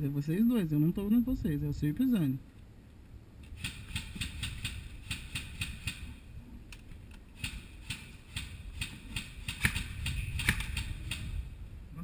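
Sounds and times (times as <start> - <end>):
low rumble: 0.0 - 12.0
sharp clicks: 6.7 - 11.4.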